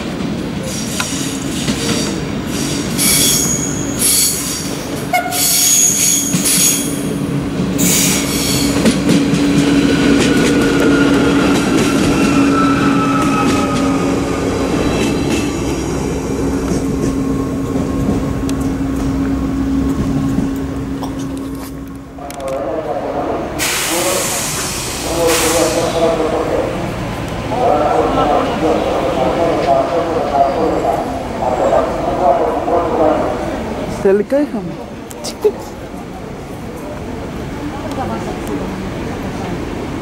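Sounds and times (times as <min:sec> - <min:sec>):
train drone and rumble: 0:00.0 - 0:40.0
train wheels squealing on curve: 0:00.6 - 0:07.2, 0:07.8 - 0:09.0, 0:10.2 - 0:14.2.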